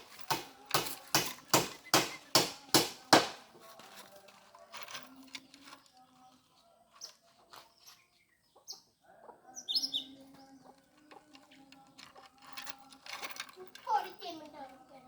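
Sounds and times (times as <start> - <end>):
bird chirping: 5.5 - 12.0.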